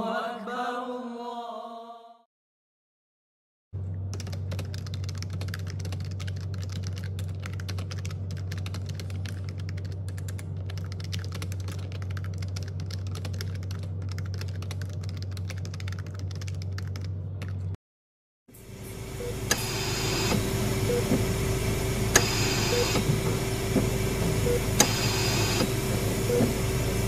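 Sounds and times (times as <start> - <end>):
keyboard typing clicks: 4.2 - 17.6
steady low hum: 18.6 - 27.0.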